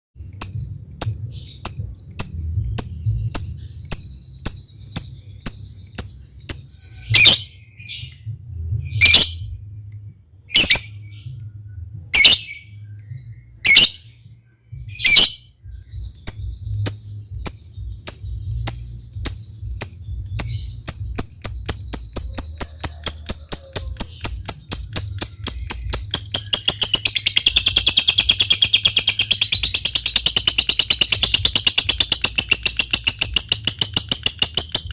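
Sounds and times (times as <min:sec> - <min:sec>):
low steady hum: 0:00.2 - 0:34.2
lovebird calling: 0:16.0 - 0:34.9.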